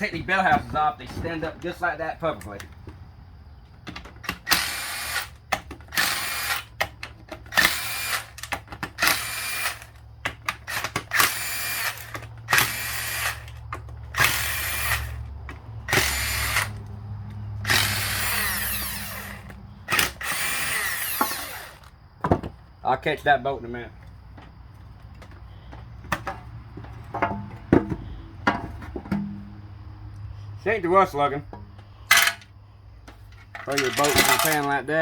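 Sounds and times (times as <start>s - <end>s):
power tool spinning bolts: 4.0s - 16.9s, 17.6s - 21.9s, 32.1s - 32.5s, 33.4s - 34.8s.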